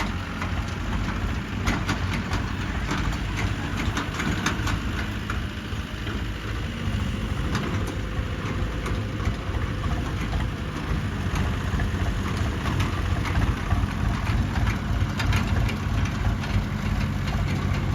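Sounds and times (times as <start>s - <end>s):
diesel engine running: 0.0s - 17.9s.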